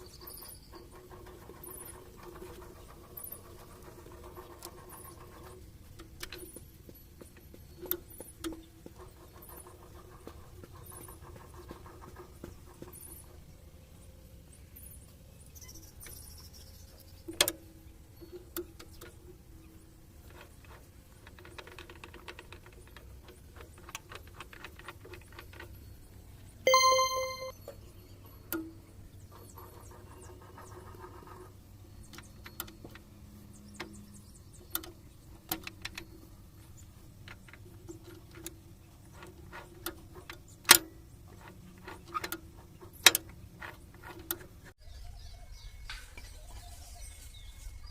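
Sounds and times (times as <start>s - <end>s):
ringing metallic ding: 26.7s - 27.5s.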